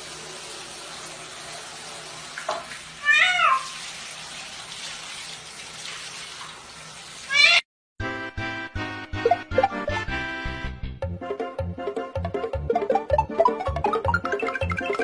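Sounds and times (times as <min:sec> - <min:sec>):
running water: 0:00.0 - 0:07.6
cat meowing: 0:03.0 - 0:03.8, 0:07.3 - 0:07.6.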